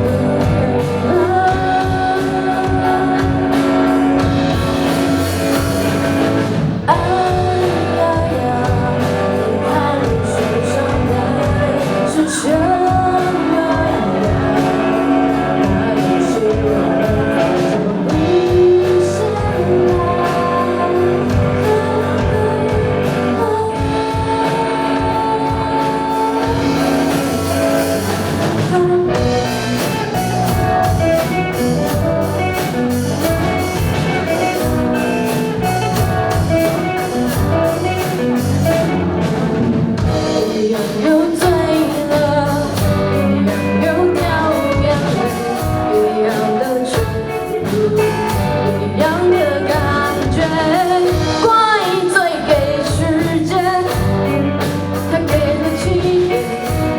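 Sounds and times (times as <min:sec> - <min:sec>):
drum beat: 0:00.0 - 0:10.4, 0:21.3 - 0:48.8
rock band with singer: 0:00.0 - 0:56.9.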